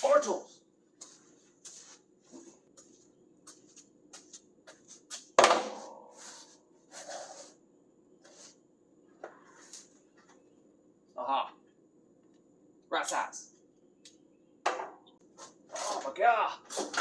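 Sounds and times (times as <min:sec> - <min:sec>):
loud ringing metal clank: 0:05.6 - 0:06.2.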